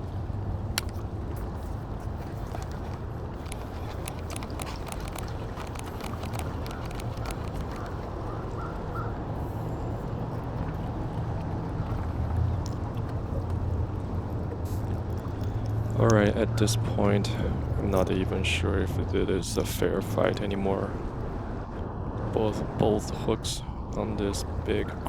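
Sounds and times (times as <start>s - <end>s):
low outdoor rumble: 0.0s - 25.0s
quick light clicks: 3.4s - 8.0s.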